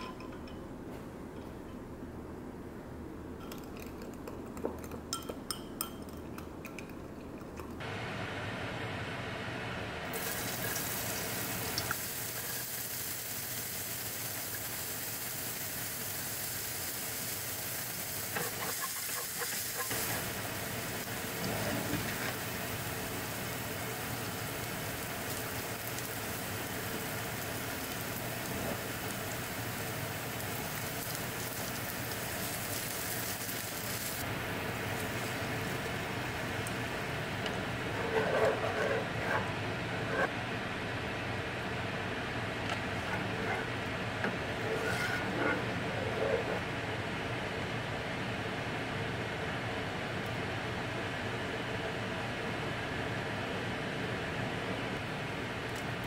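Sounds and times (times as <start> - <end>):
onion sizzling in frying pan: 10.1 - 37.3.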